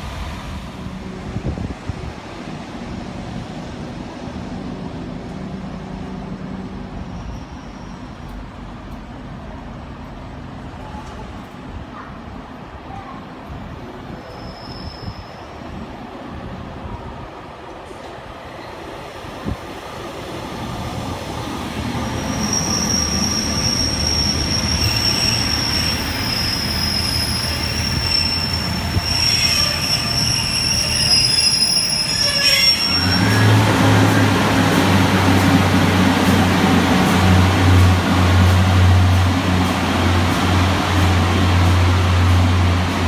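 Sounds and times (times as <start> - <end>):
train wheels squealing: 7.0 - 8.3, 14.1 - 15.7, 22.0 - 33.7.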